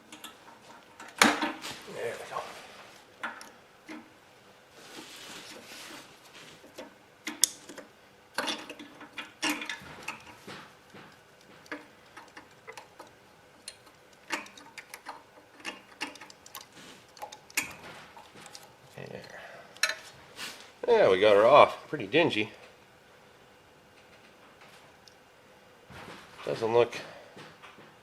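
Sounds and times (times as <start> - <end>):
metallic clicks and knocks: 6.7 - 18.7.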